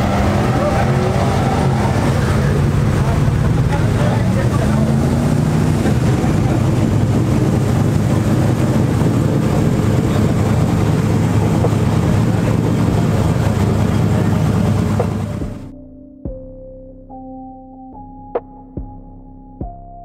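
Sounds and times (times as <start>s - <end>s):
truck engine running: 0.0s - 15.7s.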